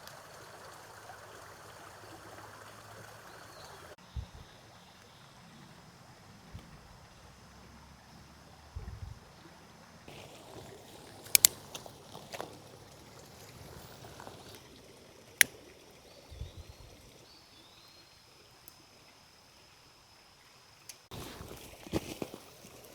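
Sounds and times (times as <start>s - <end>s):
creek flowing: 0.0s - 4.0s, 9.4s - 19.2s
sharp clicks: 11.0s - 12.5s.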